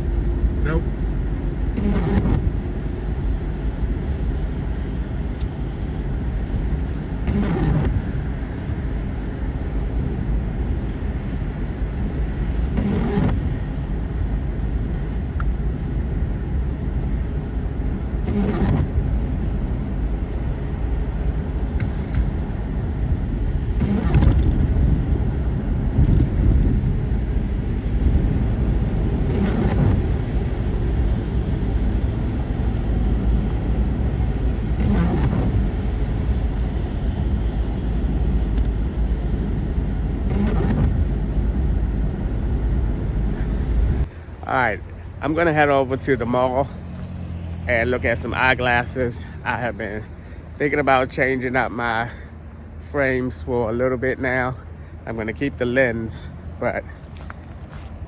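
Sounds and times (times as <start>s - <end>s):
windshield wipers sweeping: 0.0s - 44.2s
vehicle road noise rumble: 0.0s - 58.0s.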